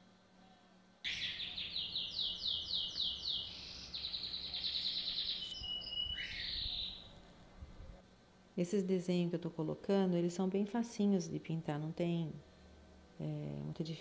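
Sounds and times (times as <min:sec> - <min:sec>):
songbird singing: 0:01.1 - 0:07.3.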